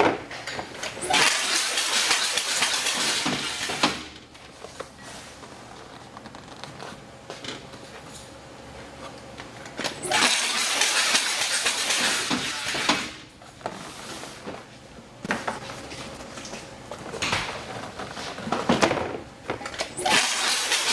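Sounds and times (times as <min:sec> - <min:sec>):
banding machine running: 0:00.8 - 0:04.2, 0:09.8 - 0:13.2, 0:19.8 - 0:20.9.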